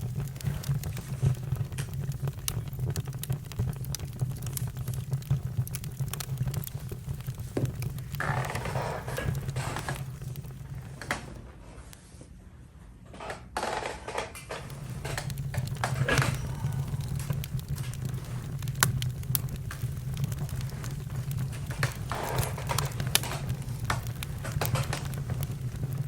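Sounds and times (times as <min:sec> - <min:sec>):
campfire crackling and popping: 0:00.0 - 0:11.4, 0:14.5 - 0:26.0
fire hissing: 0:00.0 - 0:11.4, 0:14.6 - 0:26.0
low steady rumble: 0:14.6 - 0:26.0.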